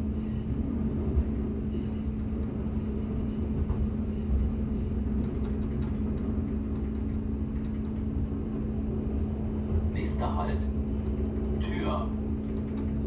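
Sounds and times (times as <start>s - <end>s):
constant engine hum: 0.0s - 13.0s
train wheels rumbling on rails: 0.0s - 13.0s.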